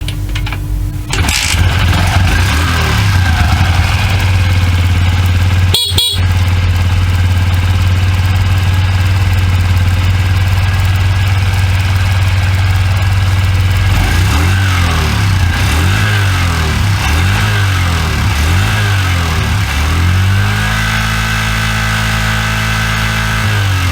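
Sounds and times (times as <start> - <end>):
motorcycle engine idling: 1.2 - 20.4
throttle blips: 5.7 - 6.4.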